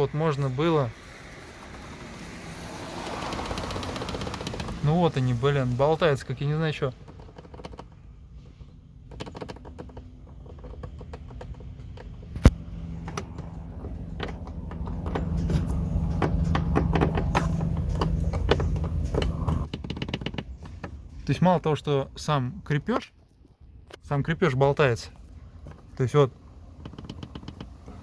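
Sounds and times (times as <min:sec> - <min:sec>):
steady low hum: 0:12.0 - 0:19.7.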